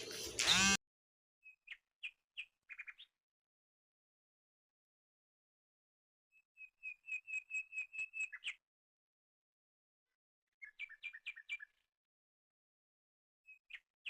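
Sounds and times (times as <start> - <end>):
songbird singing: 1.4 - 3.2, 6.3 - 8.6, 10.6 - 11.9.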